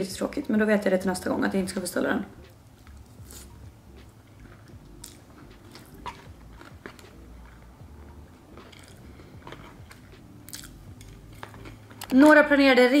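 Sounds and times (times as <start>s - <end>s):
person chewing: 2.6s - 12.1s.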